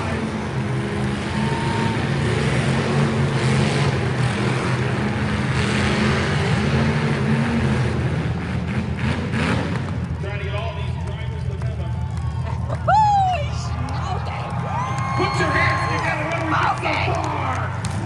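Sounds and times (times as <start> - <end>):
car engines running loudly: 0.0 - 18.0.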